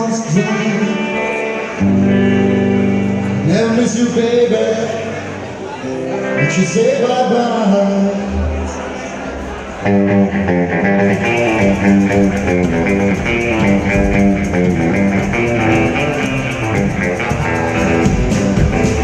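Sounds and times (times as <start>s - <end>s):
rockabilly band playing: 0.0s - 5.4s, 9.6s - 19.0s
guitar melodic lines: 0.0s - 19.0s.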